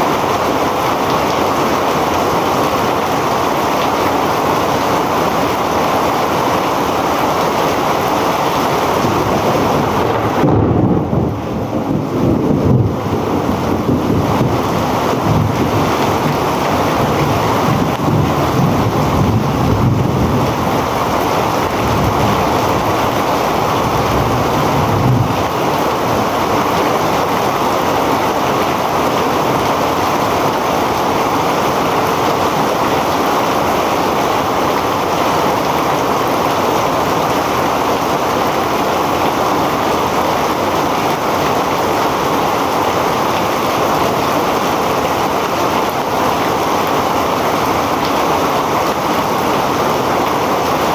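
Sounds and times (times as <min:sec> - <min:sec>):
heavy rain pouring: 0:00.0 - 0:50.9
wind buffeting microphone: 0:07.8 - 0:33.5.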